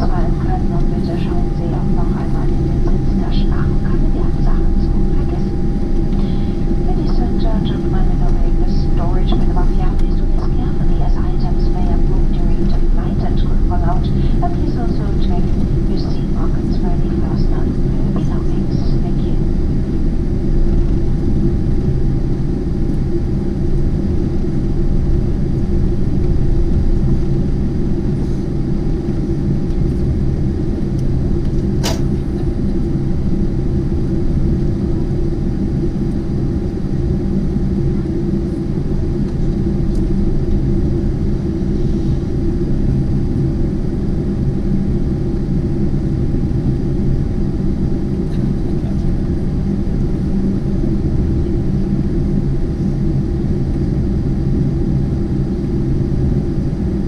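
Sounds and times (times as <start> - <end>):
airplane cabin rumble: 0.0 - 57.0
sharp click: 31.8 - 32.1.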